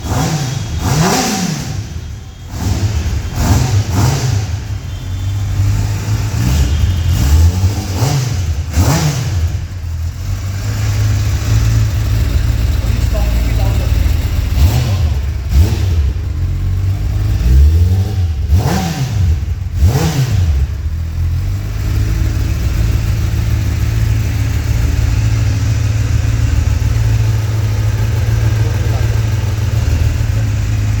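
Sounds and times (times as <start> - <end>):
motorcycle engine revving and idling: 0.0 - 31.0.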